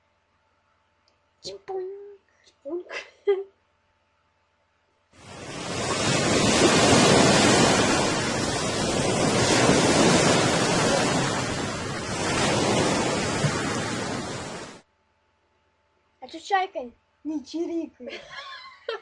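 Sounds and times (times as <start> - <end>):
sea waves washing in: 5.2 - 14.8.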